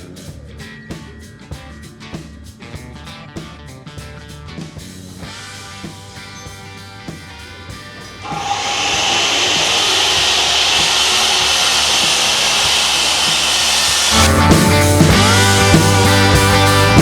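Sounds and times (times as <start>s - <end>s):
circular saw cutting: 8.2s - 16.8s
rock music: 13.3s - 17.0s.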